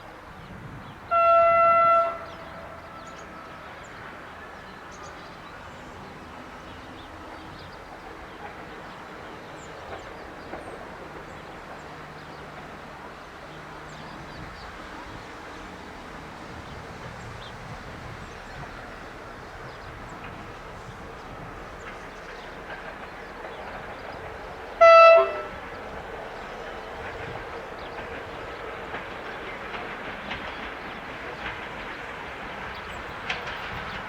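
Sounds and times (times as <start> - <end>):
train running along track: 0.0 - 34.0
locomotive horn blast: 1.1 - 3.0, 24.8 - 25.7.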